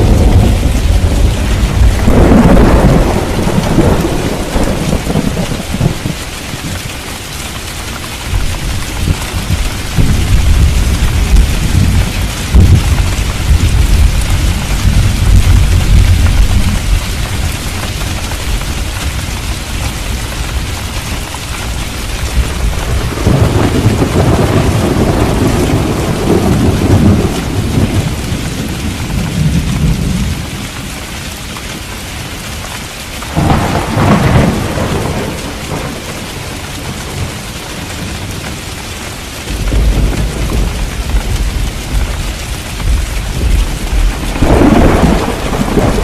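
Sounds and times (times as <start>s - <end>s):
thunder clap: 0.0s - 6.8s, 8.3s - 21.0s, 21.6s - 30.8s, 33.3s - 37.4s, 39.5s - 46.0s
thunder rumbling: 0.0s - 7.0s, 7.6s - 30.9s, 33.3s - 38.7s, 39.4s - 46.0s
heavy rain: 0.0s - 46.0s.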